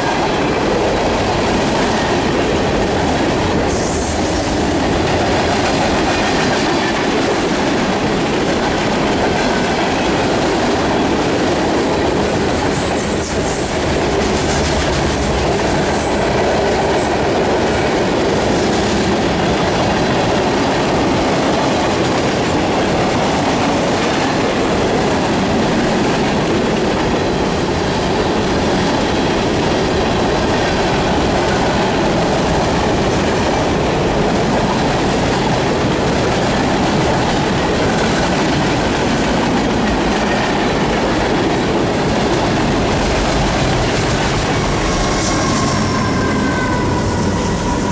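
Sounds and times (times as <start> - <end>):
train wheels clattering on rails: 0.0 - 47.9
faint wheel squeal: 44.5 - 47.9.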